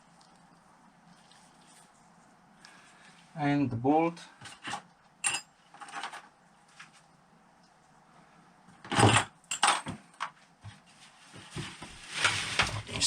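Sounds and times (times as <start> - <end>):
metallic clatters of tools: 4.4 - 6.2, 8.9 - 9.9.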